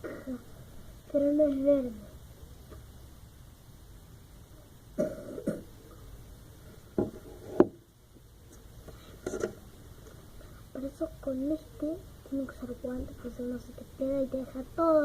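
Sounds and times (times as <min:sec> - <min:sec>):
person coughing: 0:00.0 - 0:00.4, 0:05.0 - 0:05.7.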